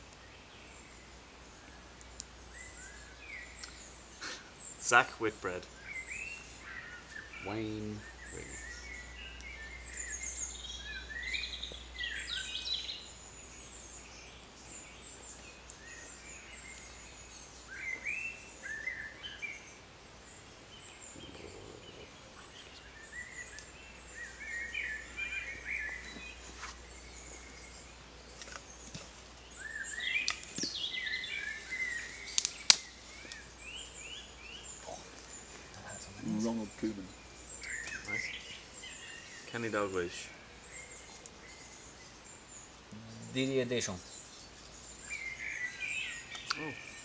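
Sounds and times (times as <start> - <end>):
birds chirping and trilling: 0.0 - 47.0.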